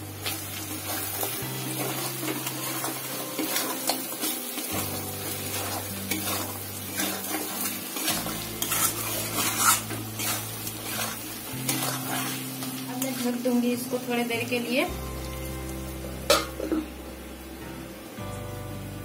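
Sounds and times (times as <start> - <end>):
chicken sizzling in oil: 0.0 - 19.0
spatula scraping metal pan: 1.7 - 13.2.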